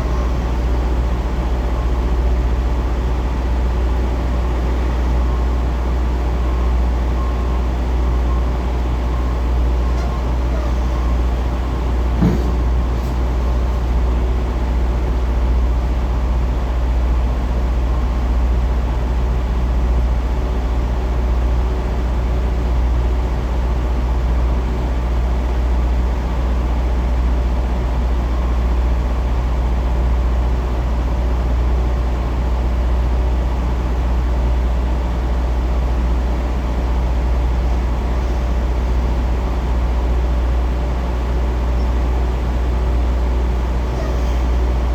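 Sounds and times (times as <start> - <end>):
diesel truck engine idling: 0.0 - 44.9
short knock: 12.1 - 13.3.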